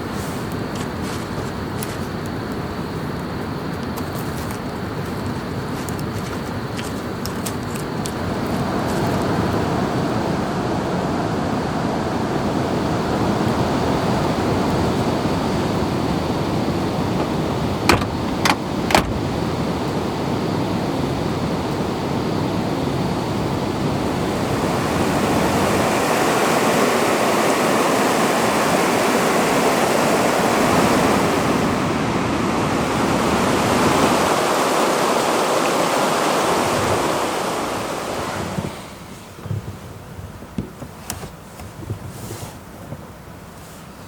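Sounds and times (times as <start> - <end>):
river water rushing: 24.0 - 39.1.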